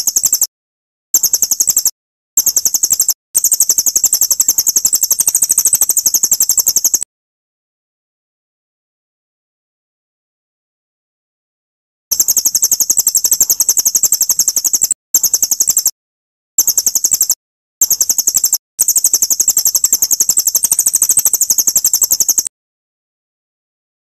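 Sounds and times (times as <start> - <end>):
songbird high-pitched trill: 0.0 - 0.5, 1.2 - 7.0, 12.1 - 16.0, 16.6 - 22.5.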